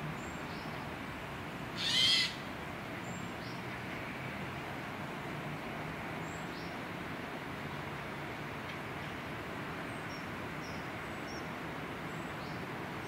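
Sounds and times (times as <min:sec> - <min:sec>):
bird shrill call: 0:01.8 - 0:02.4.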